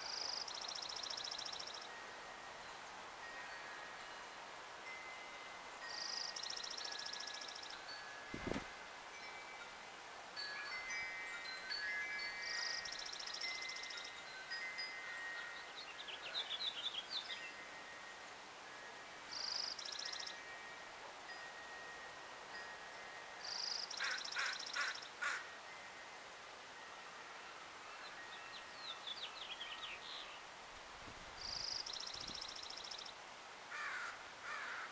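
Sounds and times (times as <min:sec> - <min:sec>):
wind chime ringing: 0:01.2 - 0:16.4, 0:17.3 - 0:23.9
birds calling and singing: 0:23.4 - 0:25.5, 0:27.9 - 0:30.5.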